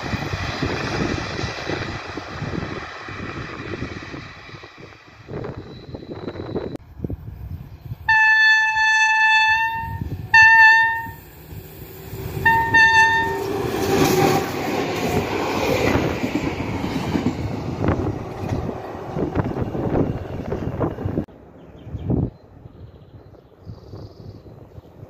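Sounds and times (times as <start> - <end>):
locomotive horn blasts: 8.1 - 11.3, 12.4 - 13.6.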